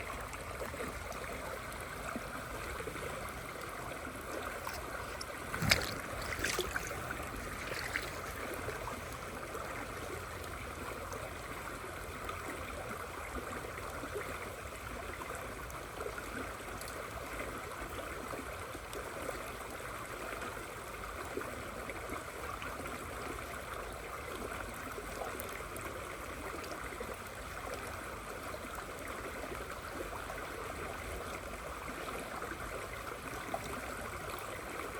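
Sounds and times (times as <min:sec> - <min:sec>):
river water flowing: 0:00.0 - 0:34.9.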